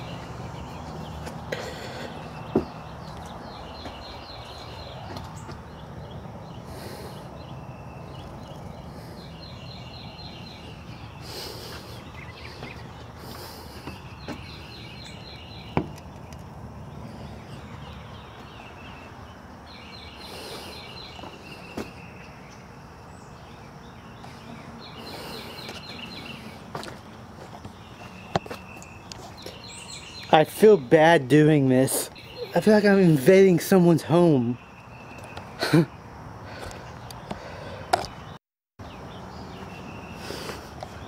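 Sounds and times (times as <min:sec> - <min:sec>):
footsteps: 0:02.5 - 0:05.7, 0:26.6 - 0:29.6.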